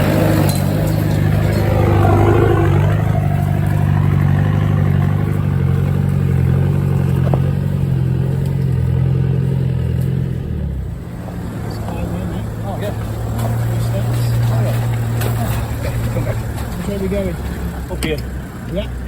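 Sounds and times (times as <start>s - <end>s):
off-road vehicle engine running: 0.0s - 19.0s
light clatter: 3.4s - 9.1s, 11.2s - 18.9s.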